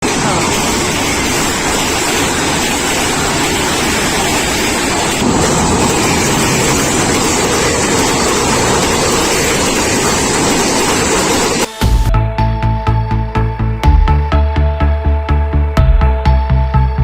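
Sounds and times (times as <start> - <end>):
train passing at speed: 0.0 - 11.8.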